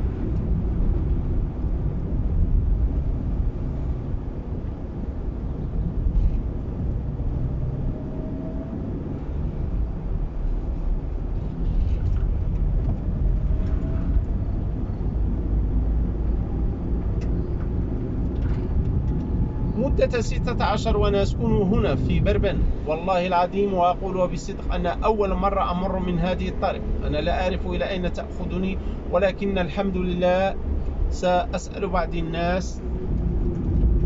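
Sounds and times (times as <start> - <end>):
car engine and tyre rumble: 0.0 - 34.0.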